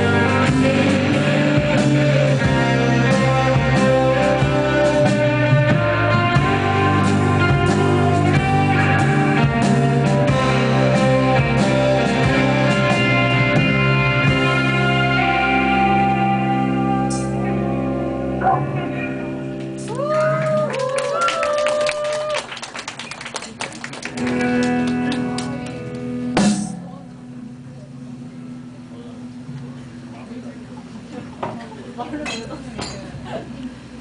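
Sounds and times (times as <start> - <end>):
live rock band playing: 0.0 - 20.6, 23.9 - 28.7
electric guitar: 0.0 - 33.4.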